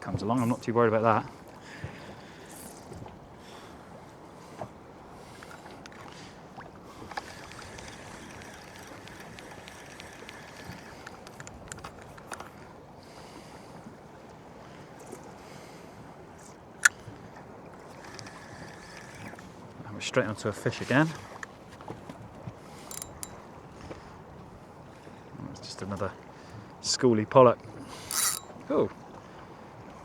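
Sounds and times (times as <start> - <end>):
water washing around boat: 0.0 - 30.0
wind: 0.0 - 30.0
light clicks: 5.3 - 12.6, 17.9 - 19.5, 22.8 - 24.0, 28.1 - 28.5.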